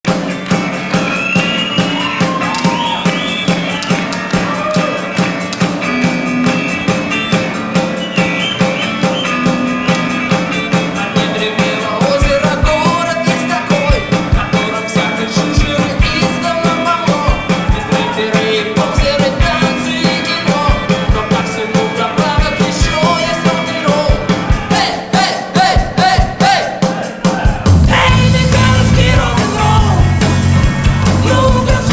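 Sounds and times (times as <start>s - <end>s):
rock and roll music: 0.0s - 31.9s.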